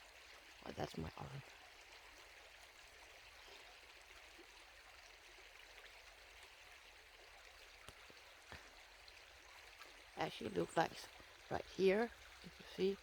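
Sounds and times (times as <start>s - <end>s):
faint stream rushing: 0.0s - 13.0s.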